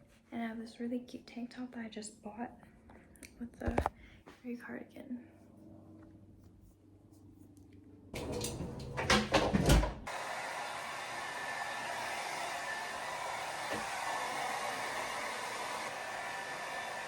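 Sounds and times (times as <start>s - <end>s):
hair dryer blowing: 10.0s - 17.0s.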